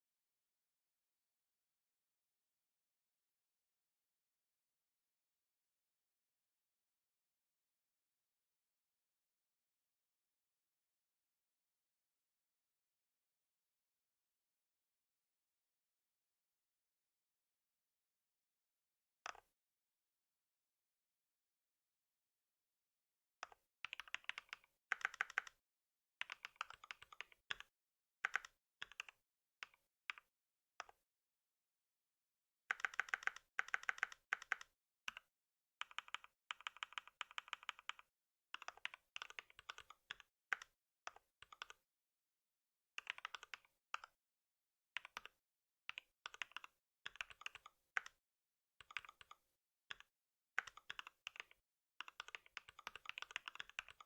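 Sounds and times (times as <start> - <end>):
computer keyboard typing: 23.9 - 25.6, 26.2 - 27.6, 28.2 - 29.2, 32.7 - 35.2, 35.8 - 40.7, 43.0 - 43.6, 46.3 - 48.2, 50.6 - 54.0.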